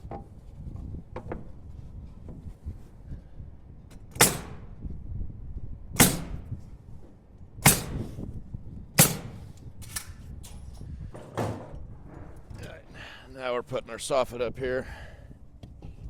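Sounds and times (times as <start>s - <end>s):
pneumatic nail gun shots: 3.9s - 4.8s, 6.0s - 6.6s, 7.6s - 8.3s, 9.0s - 10.7s.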